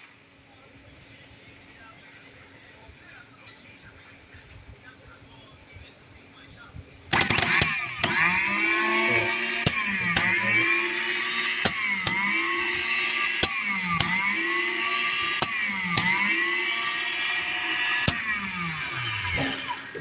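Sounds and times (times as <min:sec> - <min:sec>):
starter motor whining: 0:07.1 - 0:20.0.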